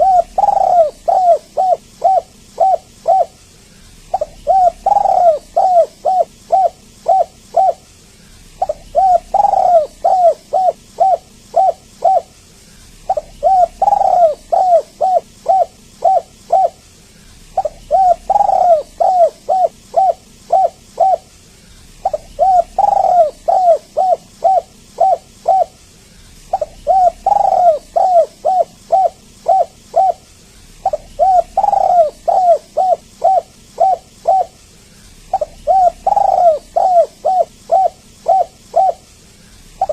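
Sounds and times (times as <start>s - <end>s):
dove cooing: 0.0s - 25.8s, 26.4s - 34.6s, 35.2s - 39.9s.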